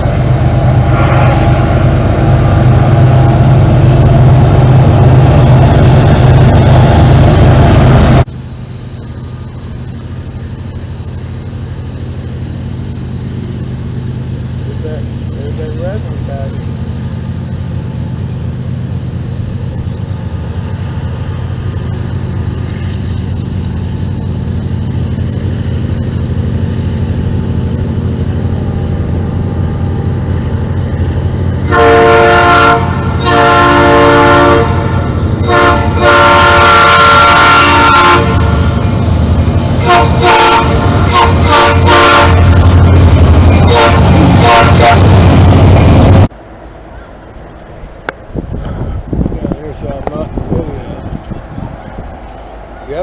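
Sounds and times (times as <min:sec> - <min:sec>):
diesel locomotive engine rumble: 0:00.0 - 0:53.0
train air horn blasts: 0:31.6 - 0:38.9, 0:39.7 - 0:42.9, 0:43.5 - 0:45.2.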